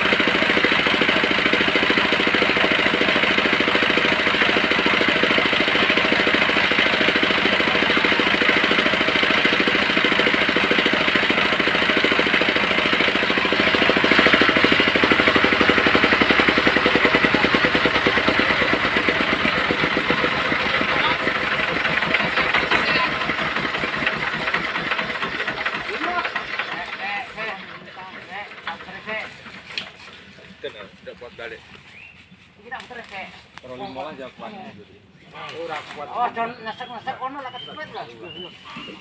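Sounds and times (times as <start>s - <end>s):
sawmill engine pulsing: 0.0s - 34.8s.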